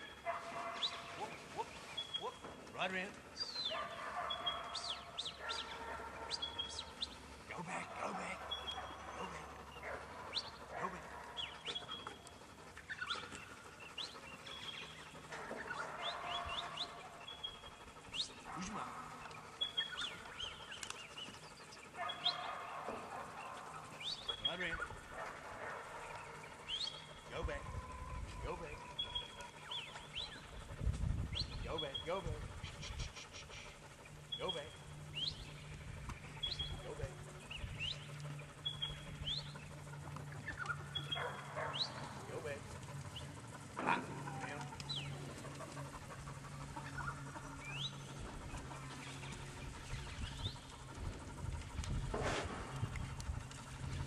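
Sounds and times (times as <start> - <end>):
birds rising chirps: 0.0 - 54.0
low steady hum: 0.0 - 54.0
whistled bird notes: 0.7 - 2.4, 36.3 - 39.6.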